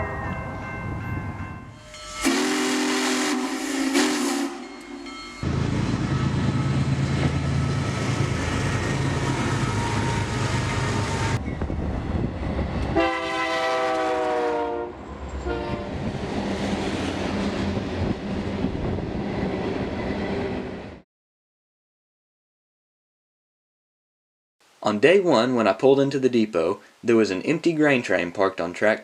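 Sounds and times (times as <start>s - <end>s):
rail noise: 0.0s - 21.0s
locomotive engine drone: 1.8s - 13.4s
locomotive air horn: 2.2s - 5.3s, 12.9s - 16.0s.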